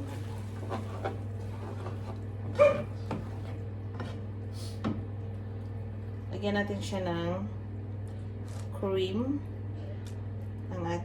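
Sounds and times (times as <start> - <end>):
steady low hum: 0.0 - 11.0
dog barking: 2.6 - 3.0.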